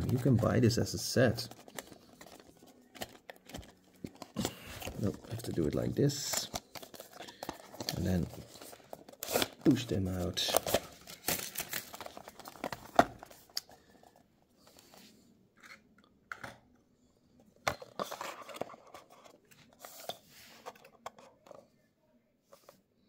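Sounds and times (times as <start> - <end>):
plastic packaging crackling: 1.4 - 13.3.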